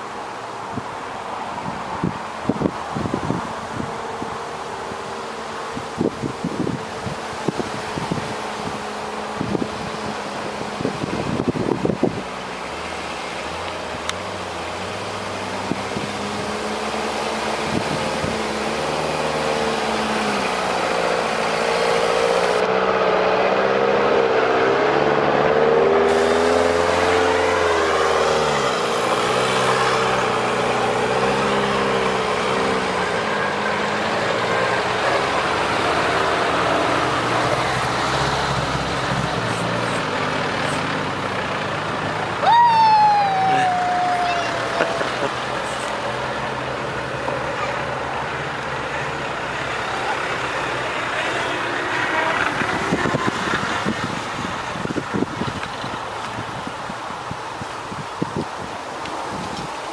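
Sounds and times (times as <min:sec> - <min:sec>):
off-road vehicle engines driving past: 0:00.0 - 0:59.9
high-pitched squeal falling in pitch: 0:42.4 - 0:45.3.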